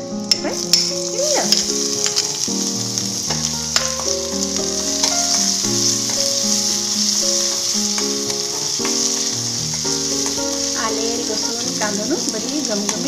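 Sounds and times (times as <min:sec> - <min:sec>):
background music with held notes: 0:00.0 - 0:13.0
food sizzling in oil: 0:00.2 - 0:13.0
metal spoon clicking on pan: 0:00.3 - 0:02.3.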